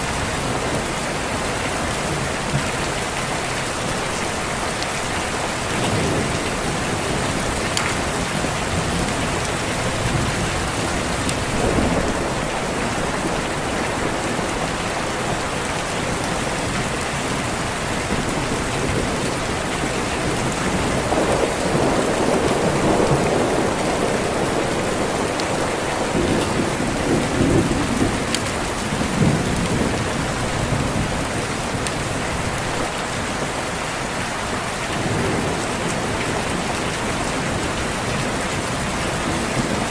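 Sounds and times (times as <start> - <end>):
steady rain: 0.0 - 39.9
low rolling thunder: 5.6 - 32.9.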